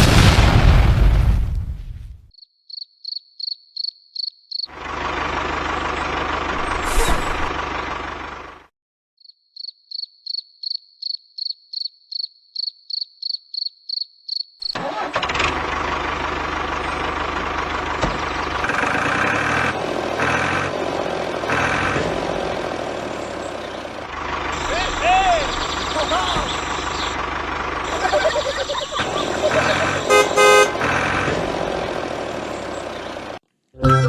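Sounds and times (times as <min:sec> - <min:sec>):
tractor engine running: 0:04.7 - 0:08.7, 0:14.8 - 0:34.0.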